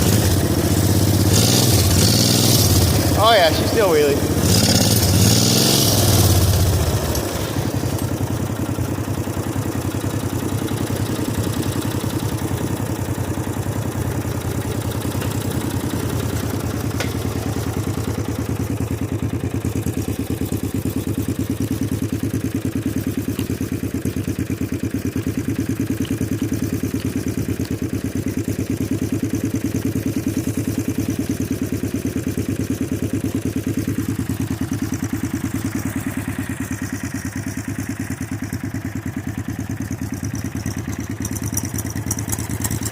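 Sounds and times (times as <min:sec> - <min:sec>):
small engine idling: 0:00.0 - 0:42.9.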